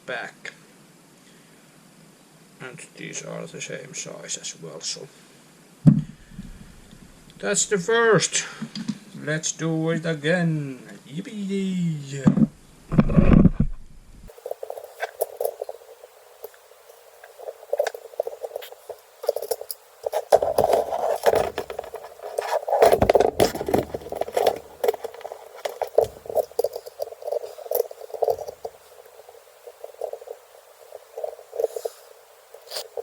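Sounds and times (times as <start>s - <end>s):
small metal parts clicking and rattling: 14.3s - 33.0s.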